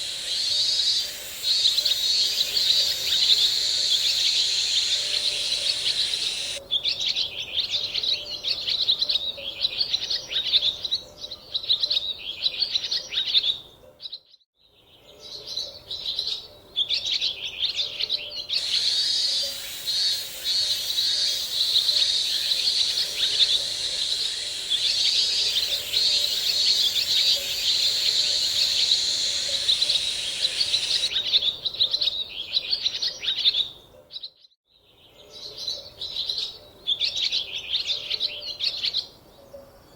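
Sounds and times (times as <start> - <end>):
birds chirping: 0.0 - 6.6, 18.5 - 31.3.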